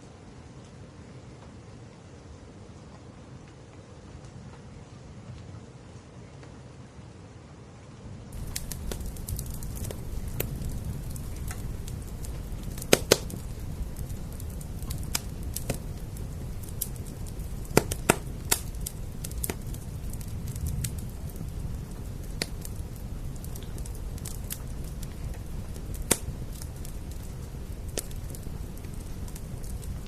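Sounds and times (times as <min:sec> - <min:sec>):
rain rumble: 0:08.3 - 0:30.0
wood fire crackling and popping: 0:08.3 - 0:30.0.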